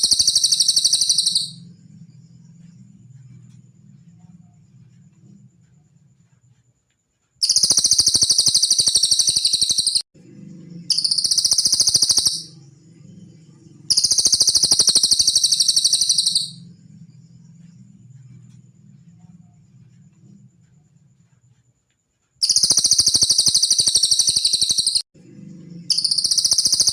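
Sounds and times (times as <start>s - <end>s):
bird high-pitched trills: 0.0s - 1.7s, 7.4s - 10.0s, 10.8s - 12.7s, 13.4s - 16.7s, 22.4s - 25.0s, 25.8s - 26.9s
faint low hum: 0.0s - 7.4s, 10.2s - 22.4s, 25.2s - 26.9s.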